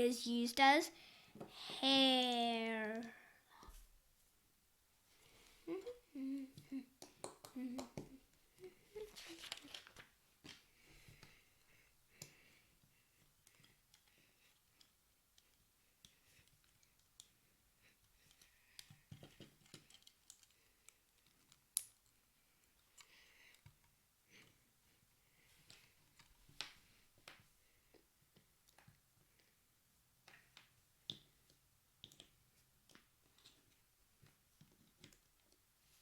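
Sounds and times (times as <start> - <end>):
pieces rustling: 9.0 - 10.6.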